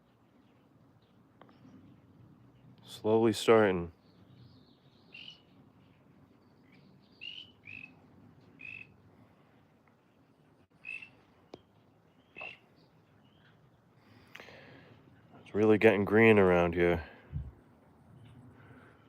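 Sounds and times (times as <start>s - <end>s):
frogs peeping: 5.0s - 5.5s, 7.1s - 9.0s, 10.7s - 13.6s.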